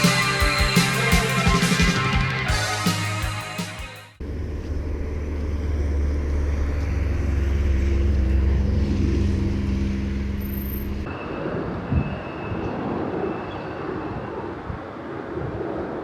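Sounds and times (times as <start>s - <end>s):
motor vehicle low rumble: 4.2s - 11.3s.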